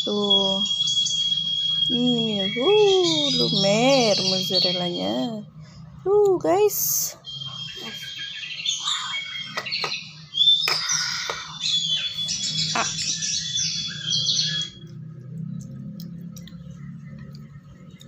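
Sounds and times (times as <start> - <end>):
low steady hum: 0.0 - 18.0
bird chirping and squawking: 0.5 - 5.8, 6.8 - 15.2.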